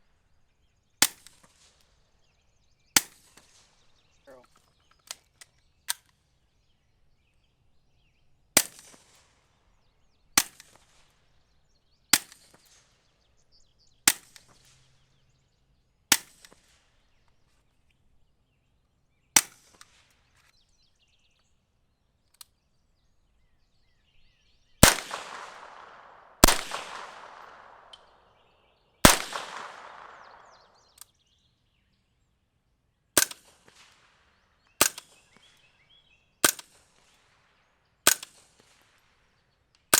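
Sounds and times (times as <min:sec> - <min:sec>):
suppressed gunshots: 0:24.8 - 0:28.2, 0:29.0 - 0:30.7.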